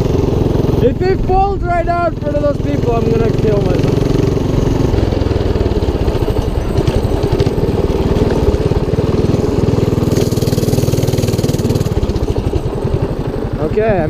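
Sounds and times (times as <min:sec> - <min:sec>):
mini bike engine running: 0:00.0 - 0:14.0.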